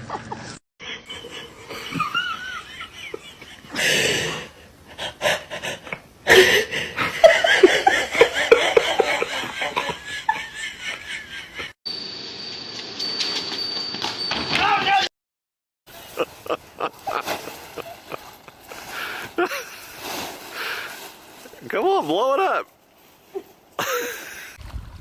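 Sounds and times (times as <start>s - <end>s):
people laughing: 0.0s - 3.8s, 7.0s - 11.7s, 16.1s - 19.7s.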